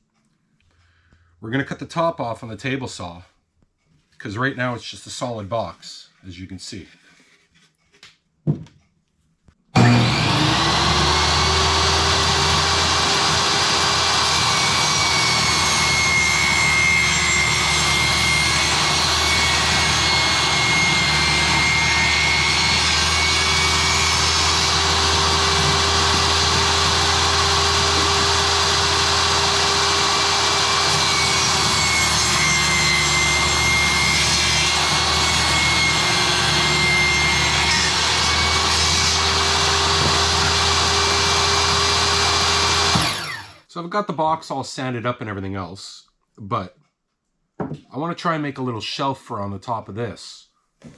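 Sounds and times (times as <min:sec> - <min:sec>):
power tool whining: 0:09.8 - 0:43.7.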